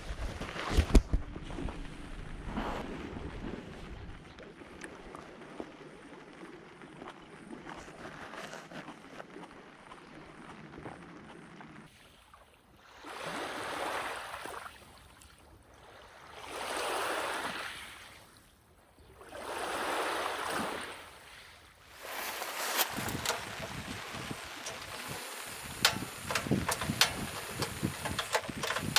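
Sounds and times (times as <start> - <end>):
lake waves washing onto beach: 21.9 - 28.9.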